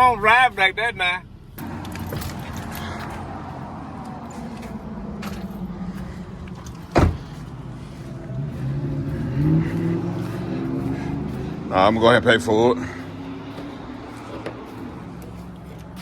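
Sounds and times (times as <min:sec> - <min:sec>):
car engine and road noise: 0:00.0 - 0:16.0
loud thump: 0:06.9 - 0:07.4.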